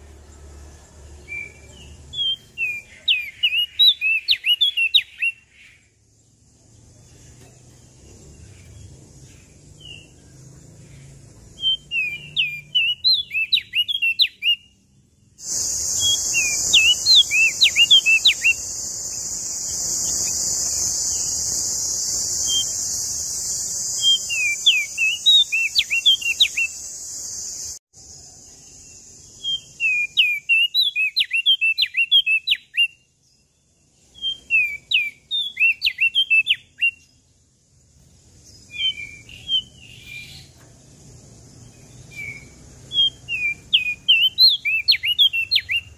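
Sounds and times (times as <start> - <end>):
bird singing high chirps: 0.0 - 37.4, 38.3 - 40.7, 41.6 - 45.9
steady high hiss: 15.4 - 30.2.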